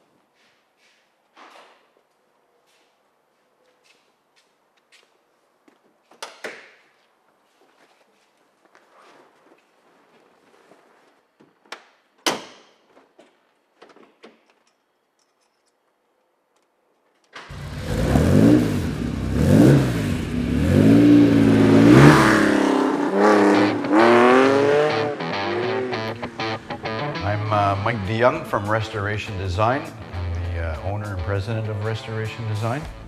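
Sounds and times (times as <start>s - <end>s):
car engine starting and revving: 17.4s - 28.2s.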